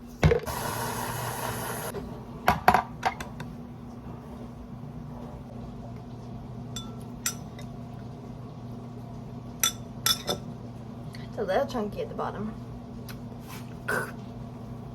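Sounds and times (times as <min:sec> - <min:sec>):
steady low hum: 0:01.9 - 0:14.9
dishes clinking and clattering: 0:09.6 - 0:10.5.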